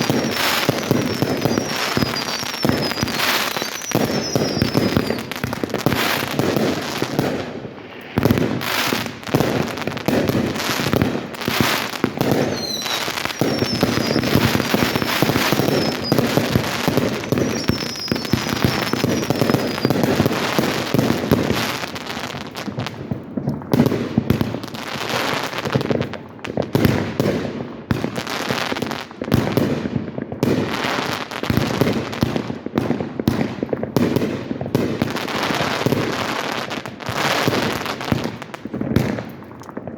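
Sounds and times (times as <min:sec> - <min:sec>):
whistling firework shells: 0:00.0 - 0:07.1, 0:07.7 - 0:21.8
firework bursts and booms: 0:00.0 - 0:39.9.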